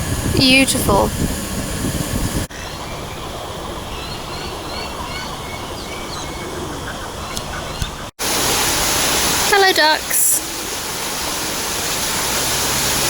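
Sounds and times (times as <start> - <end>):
steady background hum: 0.0 - 8.1
birds chirping: 2.2 - 8.1.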